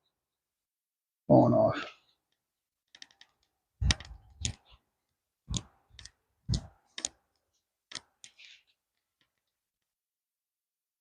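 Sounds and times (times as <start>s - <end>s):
sharp metallic clicks and knocks: 2.8s - 4.8s, 5.5s - 8.4s.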